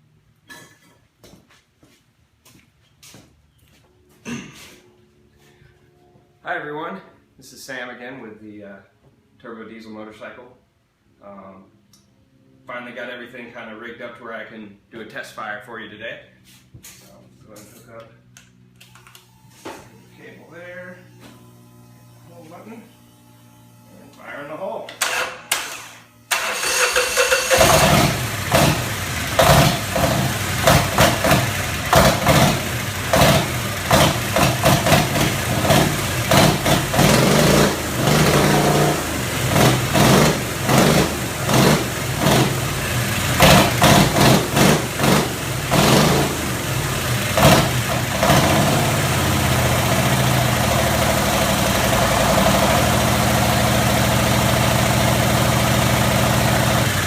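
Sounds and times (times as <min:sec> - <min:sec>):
diesel motorcycle engine running: 0:27.5 - 0:57.0.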